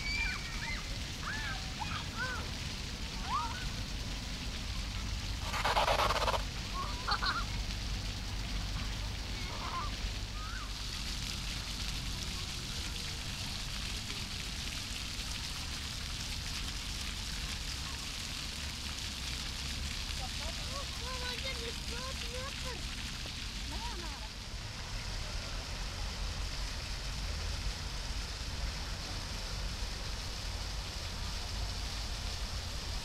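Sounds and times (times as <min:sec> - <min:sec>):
rumbling hissing background: 0:00.0 - 0:33.0
goose-like honking calls: 0:05.4 - 0:06.4.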